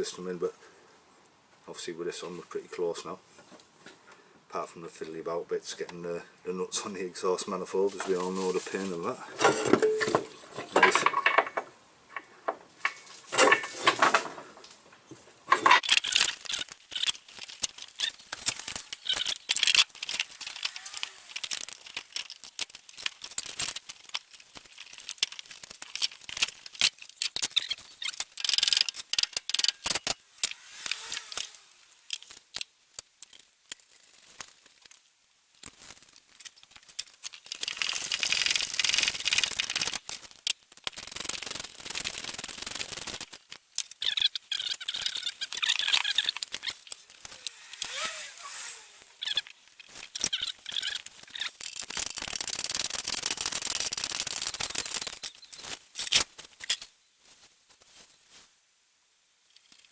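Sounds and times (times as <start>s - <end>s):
dense rasping: 15.8s - 29.6s
metal tools clinking: 15.8s - 35.0s.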